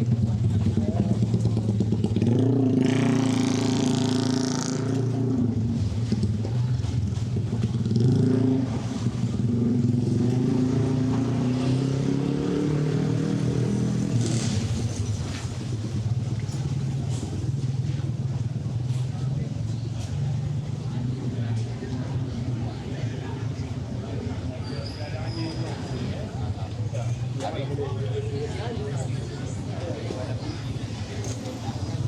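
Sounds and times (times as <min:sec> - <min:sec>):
motorcycles and cars passing: 0:00.0 - 0:32.0
engine revving: 0:01.9 - 0:06.2, 0:07.8 - 0:15.4.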